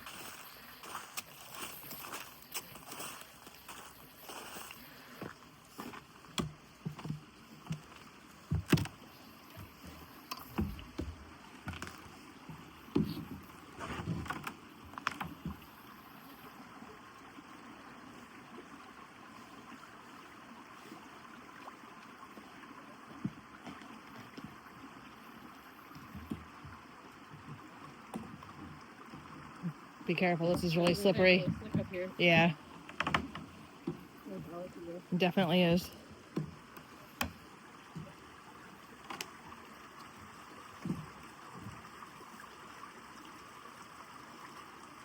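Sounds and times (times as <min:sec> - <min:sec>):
footsteps crunching on snow: 0:00.0 - 0:06.0
stream rushing: 0:00.0 - 0:45.0.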